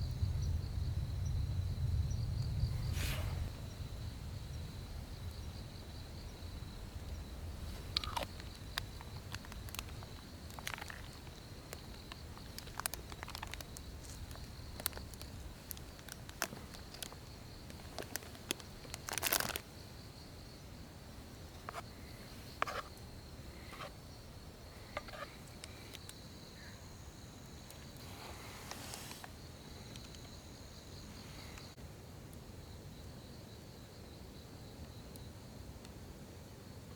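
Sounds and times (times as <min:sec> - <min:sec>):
high-pitched insect call: 0:00.0 - 0:31.8
crinkling rustle: 0:07.5 - 0:19.7, 0:27.7 - 0:30.4
small clicks and crackles: 0:07.6 - 0:19.7, 0:27.7 - 0:30.4.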